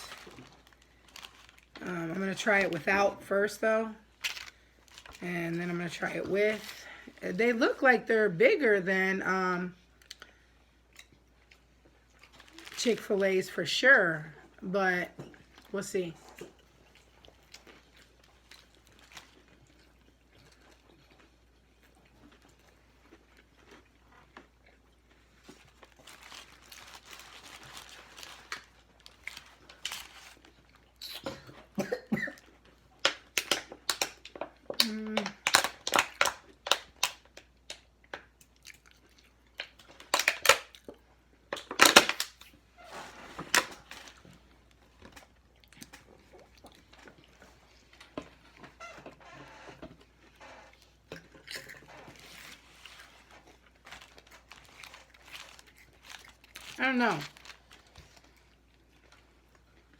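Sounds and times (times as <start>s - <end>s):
crunchy chewing: 50.0s - 59.9s.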